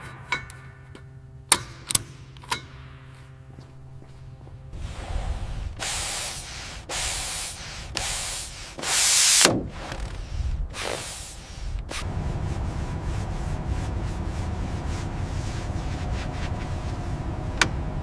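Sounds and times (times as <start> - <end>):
spraying hiss bursts: 4.8 - 9.5, 10.8 - 18.0
steady low rumble: 11.7 - 18.0.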